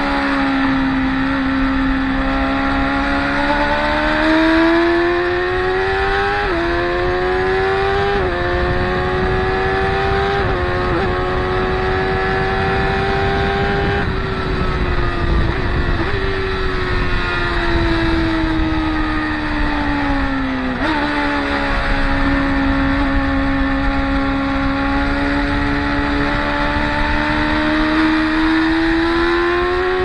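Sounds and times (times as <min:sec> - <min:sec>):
motorcycle engines revving: 0:00.0 - 0:30.0.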